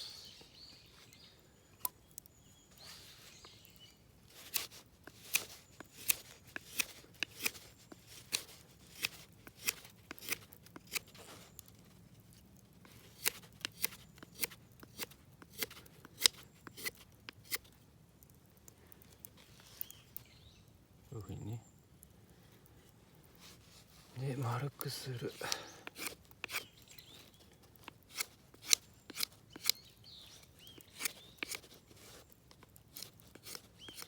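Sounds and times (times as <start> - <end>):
knife whittling wood: 4.4 - 11.3, 13.2 - 17.7, 25.3 - 27.2, 27.8 - 32.3, 32.9 - 34.0.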